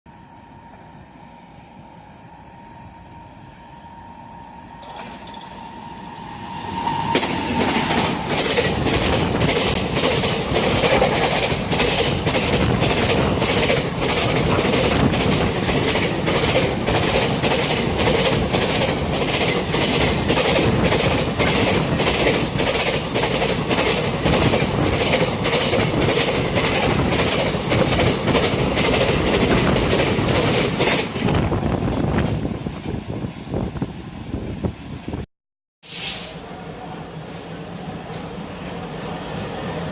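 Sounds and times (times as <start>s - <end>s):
train wheels clattering over rail joints: 7.1s - 31.4s.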